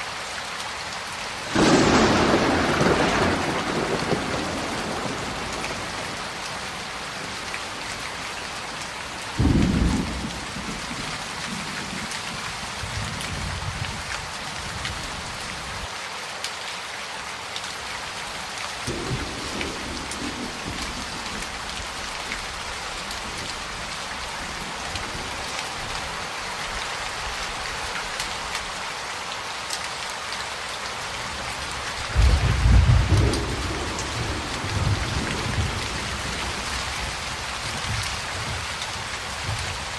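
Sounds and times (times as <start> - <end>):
heavy rain: 0.0 - 39.9
thunder rumbling: 1.5 - 7.8, 9.4 - 12.0, 18.9 - 22.6, 32.1 - 38.7.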